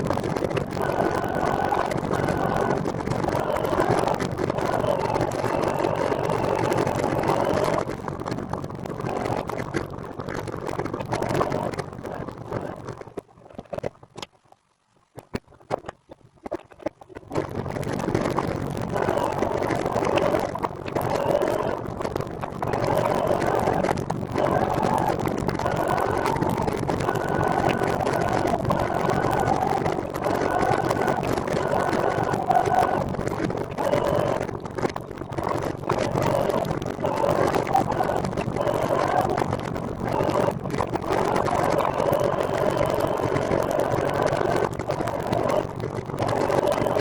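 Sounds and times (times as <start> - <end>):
wind rushing on microphone: 17.4 - 47.0.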